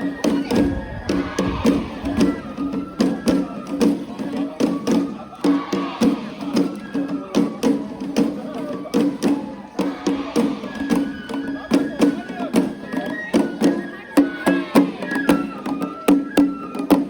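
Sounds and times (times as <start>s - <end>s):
drums struck fast: 0.0s - 12.9s
crowd voices and shouts: 0.0s - 17.0s.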